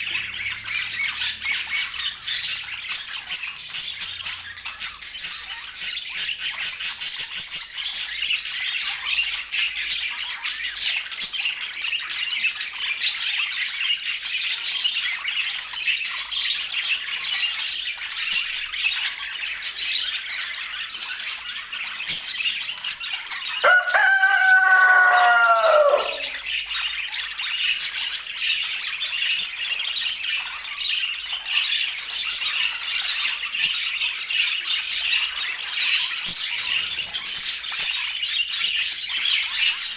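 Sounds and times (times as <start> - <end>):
budgerigars chattering: 0.0 - 7.8
loud low bird call: 23.6 - 26.4.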